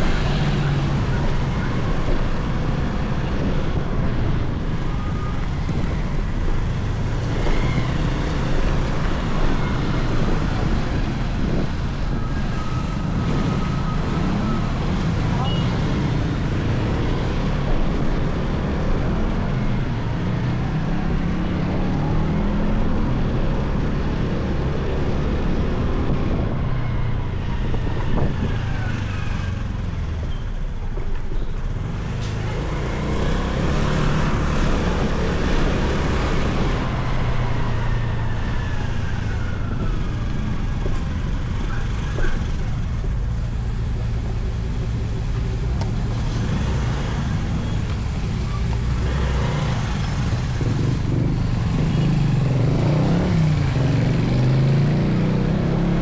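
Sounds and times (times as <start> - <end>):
street traffic: 0.0 - 56.0.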